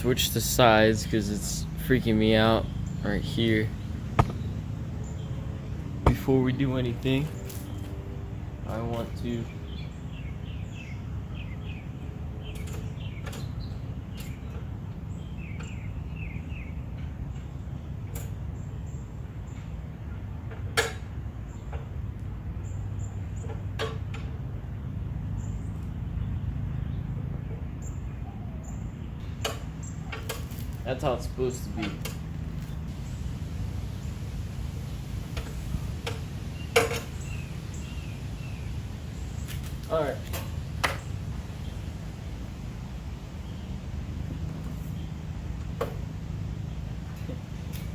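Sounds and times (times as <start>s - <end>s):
birds chirping: 0.0s - 47.9s
low steady rumble: 0.0s - 47.9s
steady low background noise: 0.0s - 47.9s
sharp clicks and knocks: 4.2s - 4.4s.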